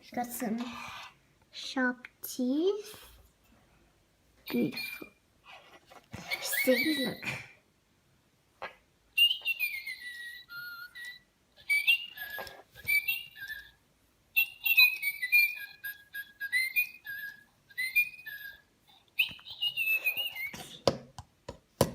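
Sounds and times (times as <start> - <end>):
toy bird whistling tune: 4.5 - 5.2, 6.2 - 7.2, 9.2 - 20.7.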